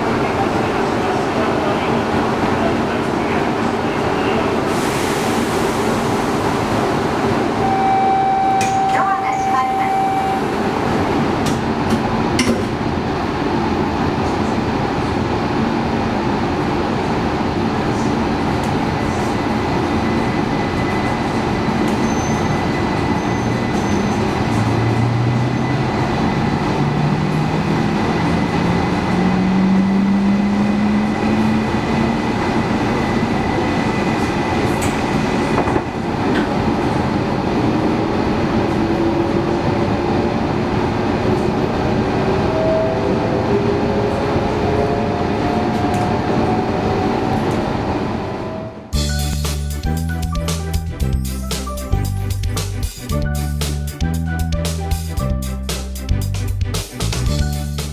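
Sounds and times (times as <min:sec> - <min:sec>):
train rumbling: 0:00.0 - 0:57.9
train motor whine rising: 0:19.8 - 0:34.9.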